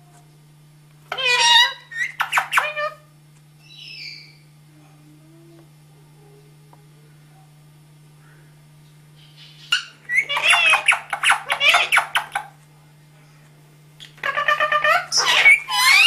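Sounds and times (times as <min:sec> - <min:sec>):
parrot chattering: 0:01.1 - 0:03.0, 0:09.6 - 0:12.5, 0:14.1 - 0:16.0.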